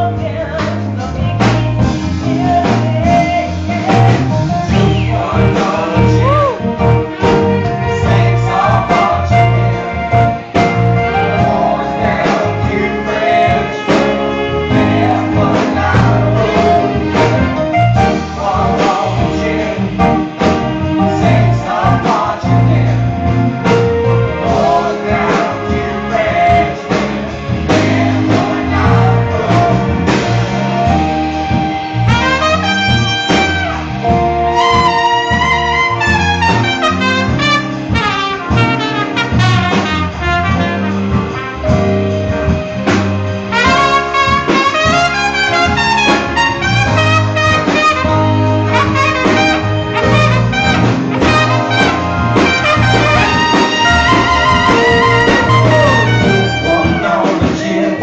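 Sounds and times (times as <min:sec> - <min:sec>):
jazz band playing: 0:00.0 - 0:58.0
trumpet runs: 0:31.7 - 0:42.1, 0:43.4 - 0:57.4.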